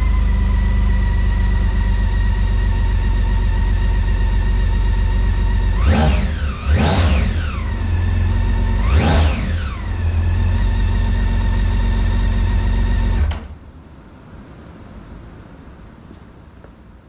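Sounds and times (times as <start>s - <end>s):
motorcycle engine idling and revving: 0.0s - 13.4s.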